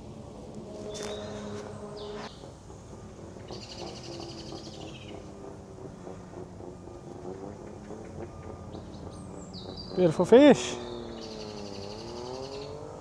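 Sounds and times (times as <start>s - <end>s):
outdoor background noise: 0.0s - 13.0s
bird trilling call: 3.5s - 5.3s, 8.0s - 12.9s.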